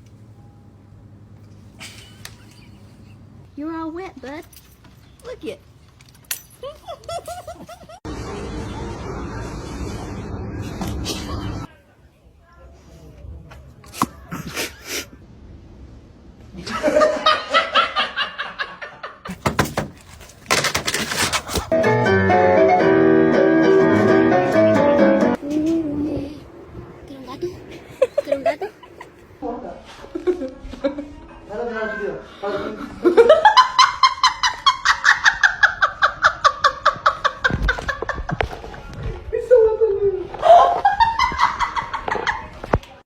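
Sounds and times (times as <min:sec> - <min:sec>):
person laughing: 0:06.6 - 0:08.0, 0:27.7 - 0:29.2
sharp knocks: 0:19.3 - 0:20.1
rustling: 0:19.3 - 0:21.8.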